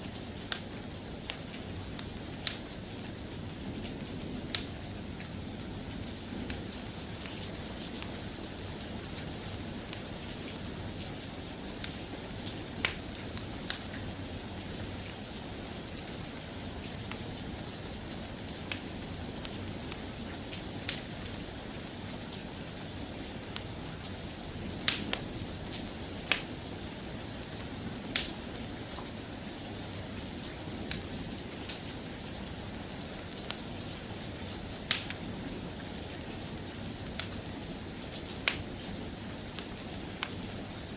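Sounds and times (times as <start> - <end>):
soft rain falling: 0.0 - 40.9.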